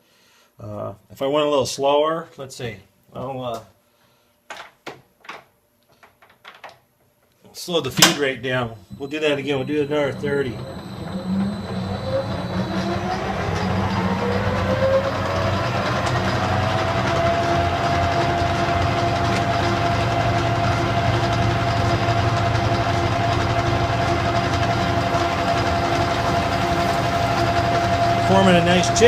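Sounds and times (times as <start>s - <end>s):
low machine hum: 7.9s - 29.0s
metal lathe whine: 8.9s - 29.0s.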